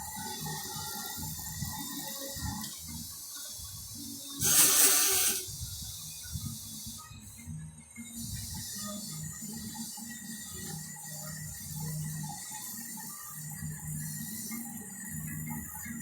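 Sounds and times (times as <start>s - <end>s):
metalworking machine humming: 3.4s - 6.1s.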